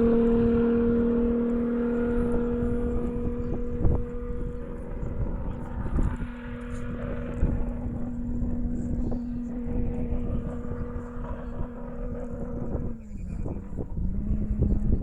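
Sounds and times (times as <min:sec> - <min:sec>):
car engine steady pitch: 0:00.0 - 0:15.0
low rumbling noise: 0:00.0 - 0:15.0.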